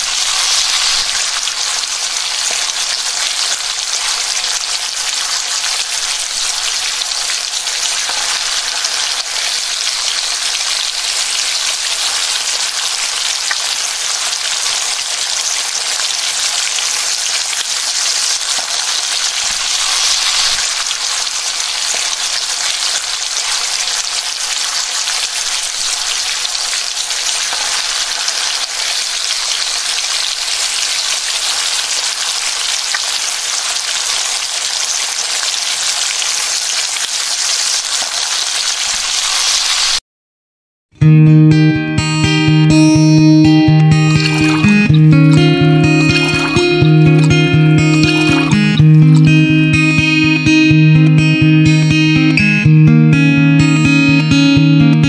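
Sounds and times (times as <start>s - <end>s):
meat and onions sizzling in oil: 0.0s - 40.0s.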